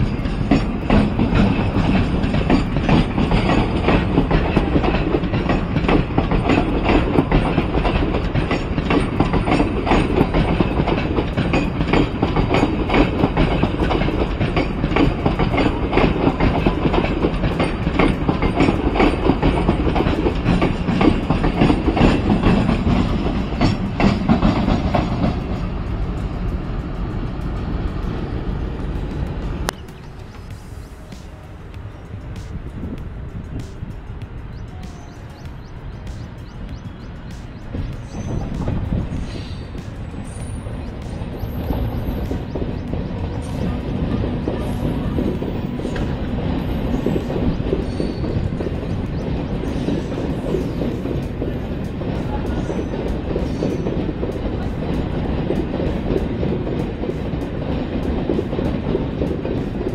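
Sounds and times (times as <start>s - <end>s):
freight train passing: 0.0s - 59.9s
train wheels clicking over rail joints: 0.0s - 59.9s.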